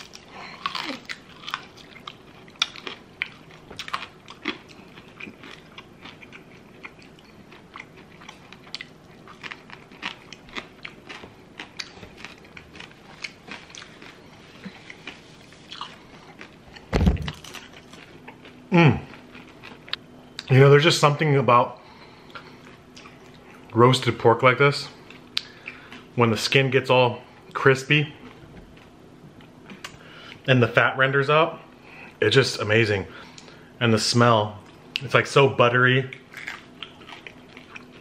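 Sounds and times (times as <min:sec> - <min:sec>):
crunchy chewing: 0:00.0 - 0:20.5, 0:36.1 - 0:38.0
loud thump: 0:16.9 - 0:17.4.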